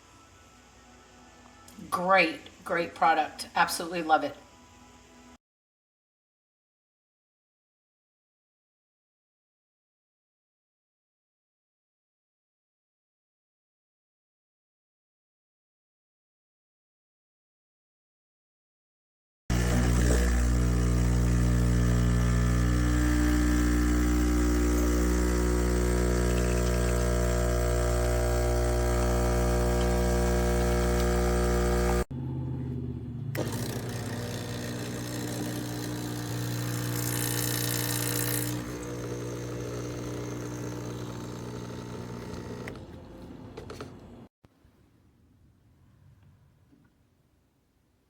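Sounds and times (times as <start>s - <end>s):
espresso machine hiss: 19.5s - 32.1s, 33.4s - 42.8s
espresso machine pump buzzing: 19.5s - 32.1s, 33.4s - 42.8s.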